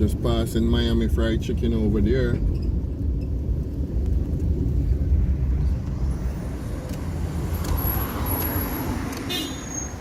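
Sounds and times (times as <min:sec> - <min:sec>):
road noise: 0:00.0 - 0:10.0
wind noise: 0:02.3 - 0:09.4.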